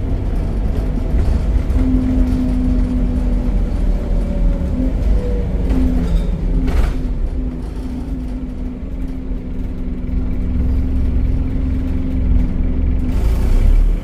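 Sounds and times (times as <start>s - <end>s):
diesel bus engine rumbling: 0.0s - 14.0s.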